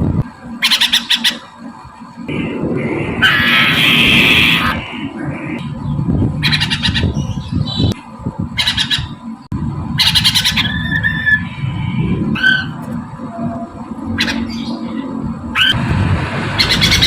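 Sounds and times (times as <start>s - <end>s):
bird rasping squawks: 0.6s - 1.6s, 2.4s - 5.6s, 6.4s - 7.3s, 8.6s - 9.2s, 10.0s - 12.8s, 14.1s - 15.8s.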